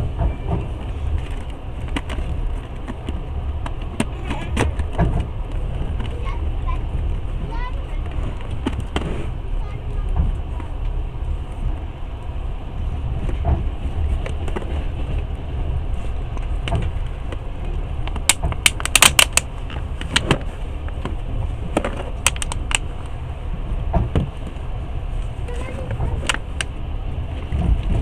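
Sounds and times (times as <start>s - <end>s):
train low rumble: 0.0s - 28.0s
sharp clicks and rattles: 18.0s - 21.1s, 21.7s - 23.2s.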